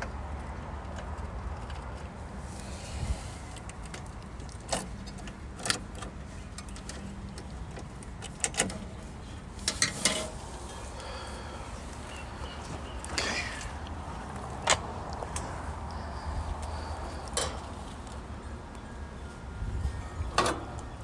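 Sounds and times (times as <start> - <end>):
clicks and knocks of handling parts: 3.5 - 10.8, 11.8 - 18.3.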